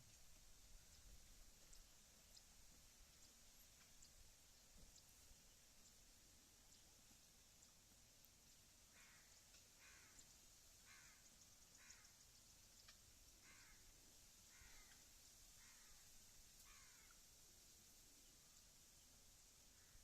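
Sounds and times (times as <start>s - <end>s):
bird calling faintly: 8.8s - 17.3s.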